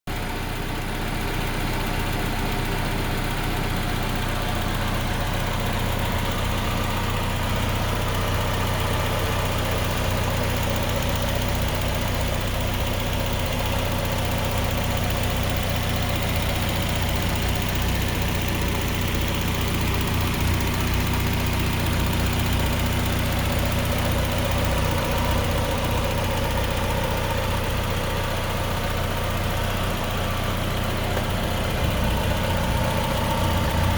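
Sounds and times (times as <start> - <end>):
engine idling: 0.1 - 33.9.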